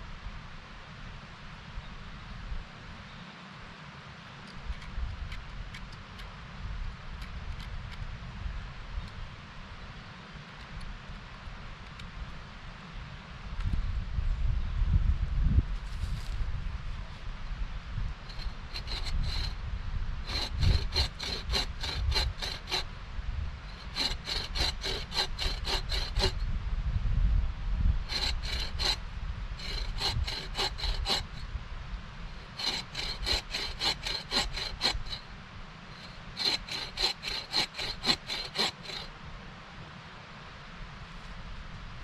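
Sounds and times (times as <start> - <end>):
hand saw cutting wood: 18.2 - 19.6, 20.2 - 22.9, 23.7 - 26.4, 28.0 - 31.4, 32.3 - 39.1.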